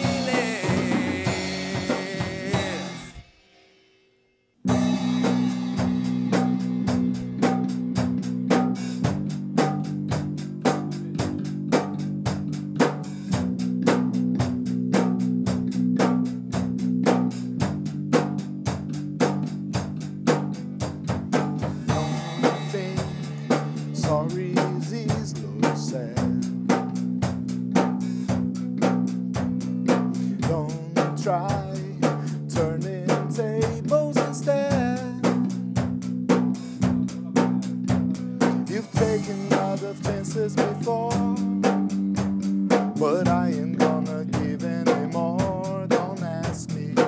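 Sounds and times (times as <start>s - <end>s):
live rock band: 0.0s - 3.4s, 4.7s - 47.0s
steady drum beat: 0.0s - 3.5s, 4.7s - 47.0s.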